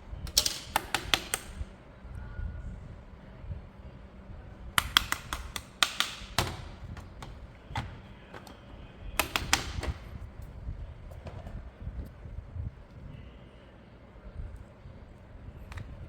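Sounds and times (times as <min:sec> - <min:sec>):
hard plastic clicks and taps: 0:00.3 - 0:01.6, 0:04.8 - 0:08.6, 0:09.2 - 0:10.1.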